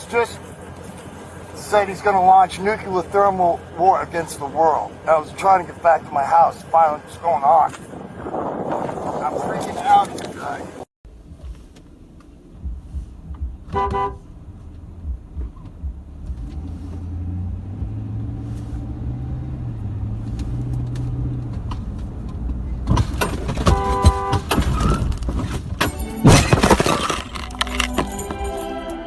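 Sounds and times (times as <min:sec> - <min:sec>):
car engine running: 0:11.1 - 0:29.0
car horn: 0:12.7 - 0:17.1, 0:23.2 - 0:25.2.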